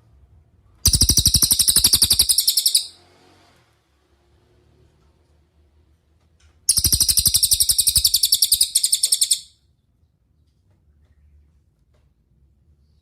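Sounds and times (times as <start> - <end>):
songbird high repeated chirps: 0.9 - 3.0, 6.7 - 9.5.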